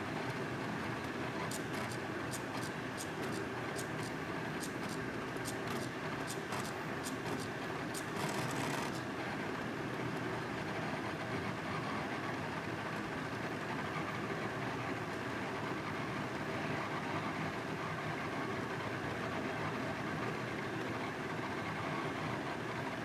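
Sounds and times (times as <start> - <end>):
drawing machine motors humming: 0.3 - 9.1.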